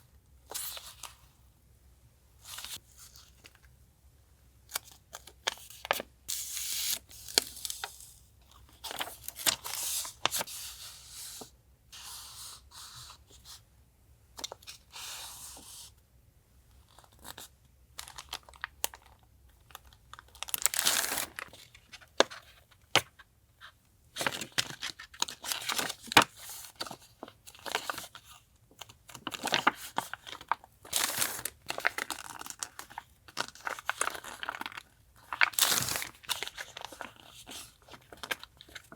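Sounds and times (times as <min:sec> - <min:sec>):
paper and plastic rustling: 0:18.0 - 0:23.2, 0:24.2 - 0:38.9.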